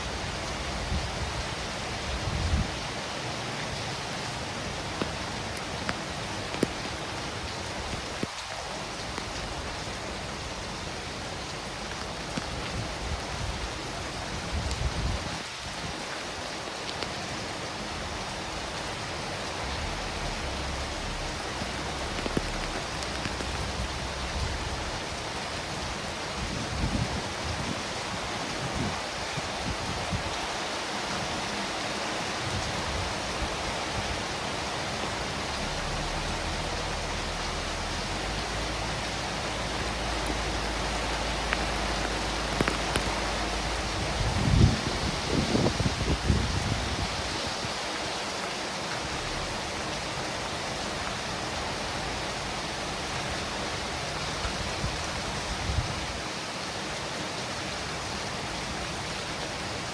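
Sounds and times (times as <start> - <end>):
steady rain pattering: 0.0 - 59.9
low rumble: 18.0 - 27.0, 33.4 - 47.0, 49.0 - 50.0
drop ticks: 40.1 - 43.9.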